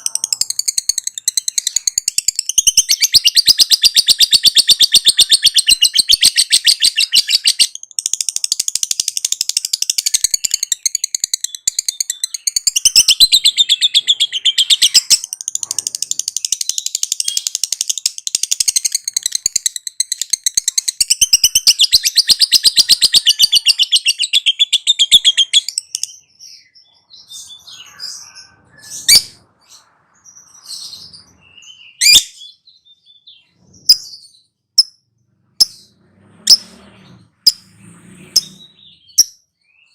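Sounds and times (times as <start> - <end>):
lovebird chattering trill: 0.0 - 26.2
sharp bird chirps: 0.0 - 39.9.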